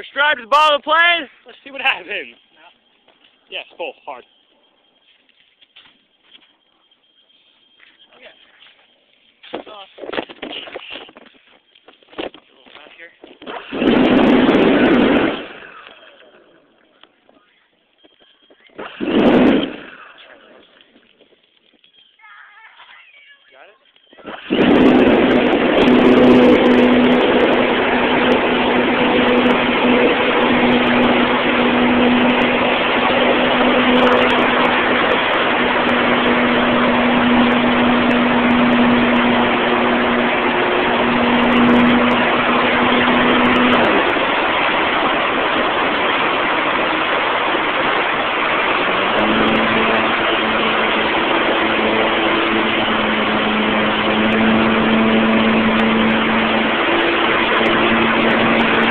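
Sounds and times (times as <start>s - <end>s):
wind rushing over microphone: 13.4s - 15.8s, 18.8s - 20.0s, 24.2s - 58.9s
model airplane motor humming: 13.4s - 16.5s, 24.2s - 58.9s.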